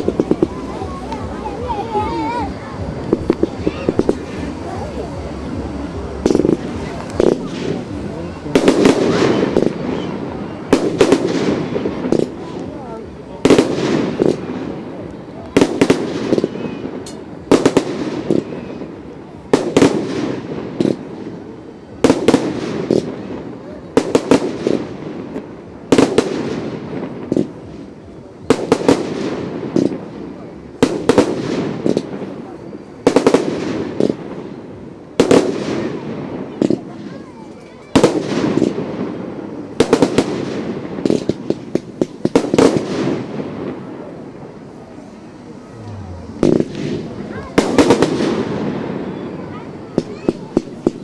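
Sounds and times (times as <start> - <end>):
fireworks sharp bangs: 0.0 - 37.2, 37.9 - 51.0
fireworks crackling rumble: 0.0 - 51.0.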